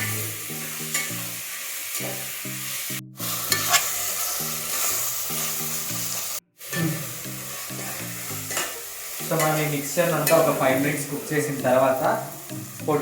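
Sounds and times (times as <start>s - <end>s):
masala sizzling in a pan: 0.0s - 13.0s
spoon scraping a pan: 0.6s - 1.2s, 3.2s - 5.8s, 6.6s - 10.5s.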